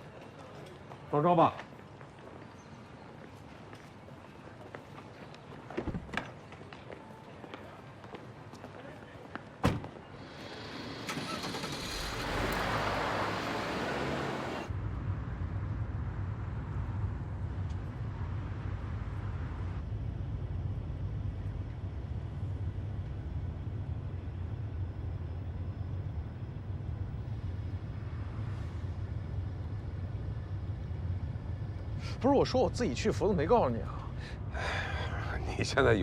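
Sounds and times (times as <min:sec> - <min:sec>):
road traffic noise: 0:00.0 - 0:36.0
car engine drone: 0:10.1 - 0:36.0.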